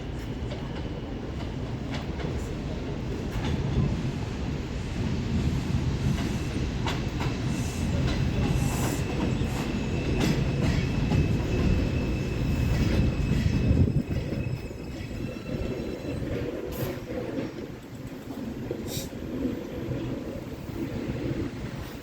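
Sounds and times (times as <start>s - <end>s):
subway train rumbling past: 0.0s - 22.0s
faint steady squeal: 8.6s - 17.0s.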